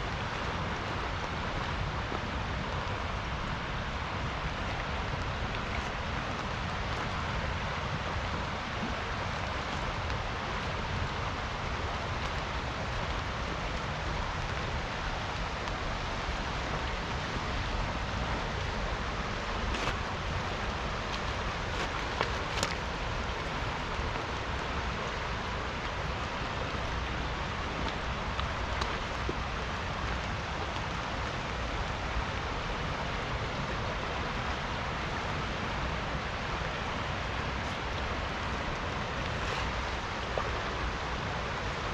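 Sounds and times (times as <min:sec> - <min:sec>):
river rushing: 0:00.0 - 0:41.9
steady rain falling: 0:00.0 - 0:41.9
raindrop ticks: 0:04.3 - 0:18.8, 0:19.4 - 0:32.8.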